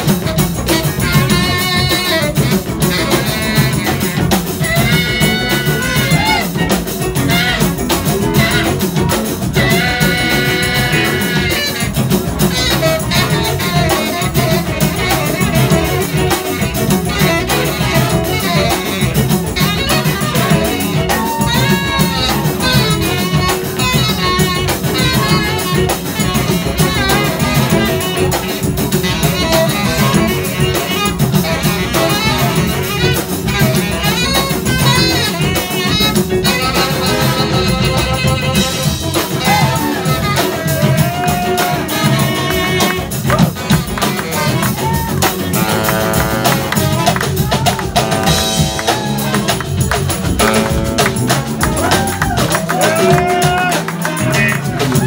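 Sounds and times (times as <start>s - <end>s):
drum kit: 0.0s - 55.0s
electric guitar with bending notes: 0.0s - 55.0s
horns: 0.0s - 55.0s.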